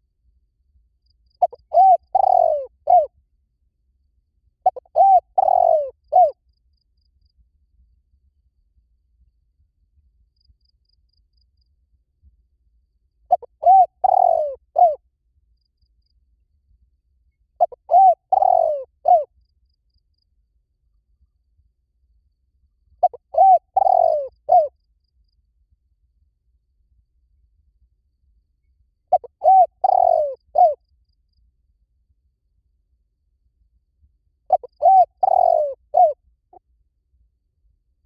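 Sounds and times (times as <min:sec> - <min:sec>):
dove cooing: 0:01.4 - 0:03.1, 0:04.6 - 0:06.4, 0:13.3 - 0:15.0, 0:17.6 - 0:19.3, 0:23.0 - 0:24.7, 0:29.1 - 0:30.8, 0:34.5 - 0:36.2.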